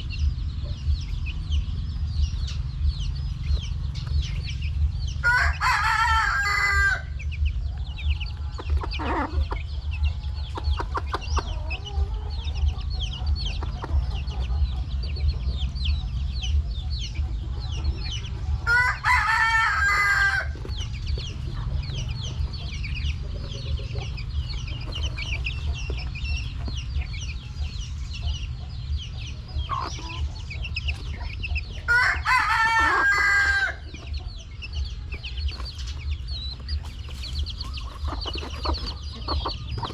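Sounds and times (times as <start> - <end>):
chickens clucking and peeping: 0.0 - 39.9
low hum: 0.0 - 39.9
rooster crowing: 5.2 - 7.1, 18.7 - 20.6, 31.9 - 33.8.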